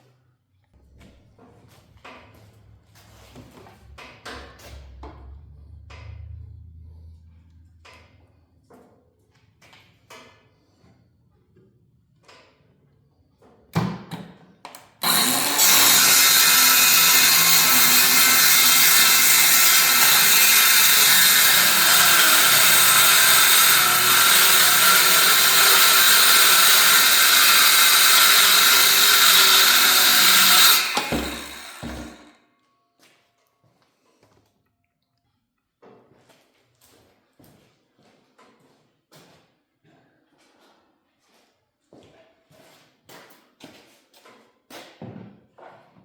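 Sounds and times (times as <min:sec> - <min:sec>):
electric drill running: 0:15.0 - 0:32.2.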